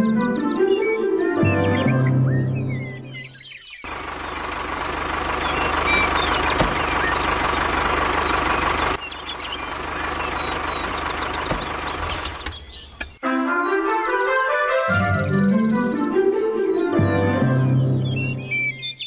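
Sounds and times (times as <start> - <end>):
vehicle engine rumbling: 3.8 - 13.2.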